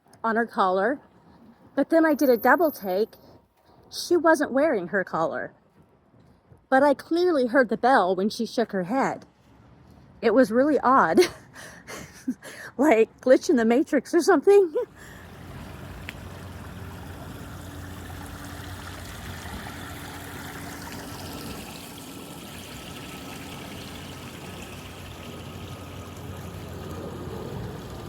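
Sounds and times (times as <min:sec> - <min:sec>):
stream water rushing: 0:14.9 - 0:28.0.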